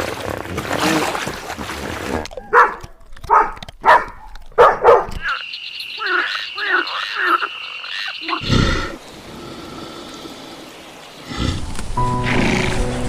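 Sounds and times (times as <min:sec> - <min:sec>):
large animal roaring: 0:11.2 - 0:12.9.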